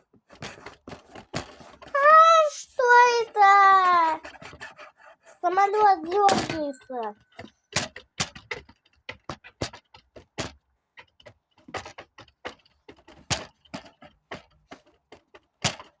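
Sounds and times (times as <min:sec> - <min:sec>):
plastic toys clicking together: 0:05.4 - 0:16.0.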